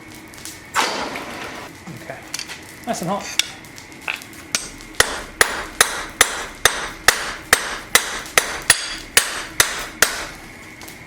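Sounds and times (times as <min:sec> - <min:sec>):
hammer striking steel on anvil: 0:04.6 - 0:10.4.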